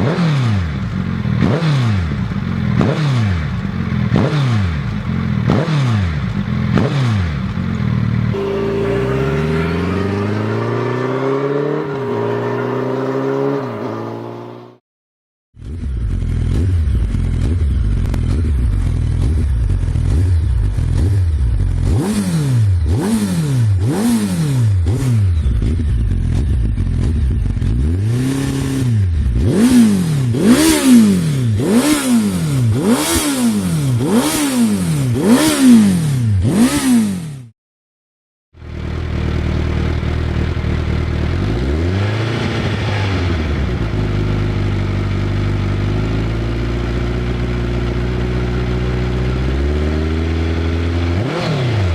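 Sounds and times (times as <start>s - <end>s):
motorcycle engine revving: 0.0s - 14.8s, 15.6s - 37.6s, 38.6s - 51.9s
motorcycle exhaust idling: 15.6s - 22.0s, 25.2s - 29.4s, 38.6s - 41.6s, 43.5s - 51.1s.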